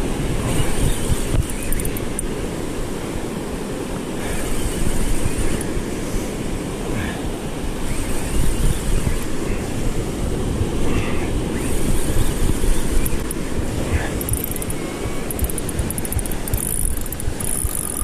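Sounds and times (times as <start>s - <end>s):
wind buffeting microphone: 0.0s - 2.6s, 6.5s - 18.0s.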